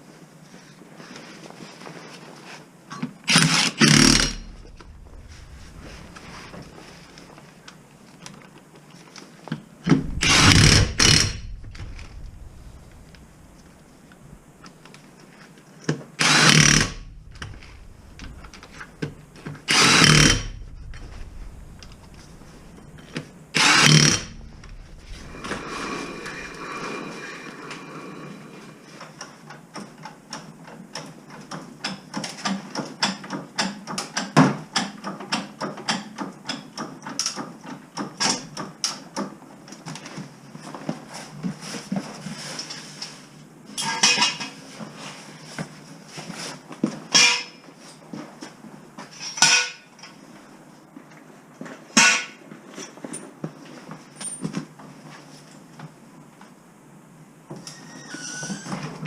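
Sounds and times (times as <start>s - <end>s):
impact wrench bursts: 3.3s - 6.5s, 9.9s - 13.6s, 16.2s - 22.6s, 23.6s - 26.7s.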